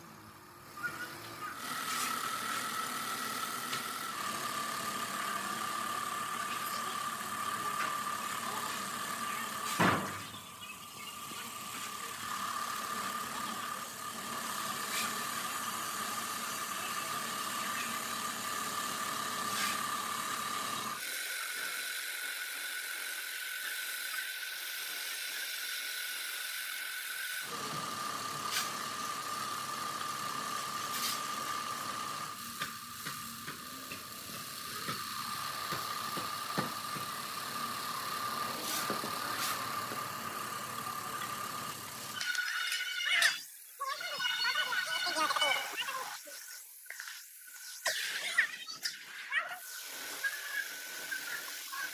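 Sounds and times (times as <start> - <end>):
machinery high whine: 0.0 - 21.0.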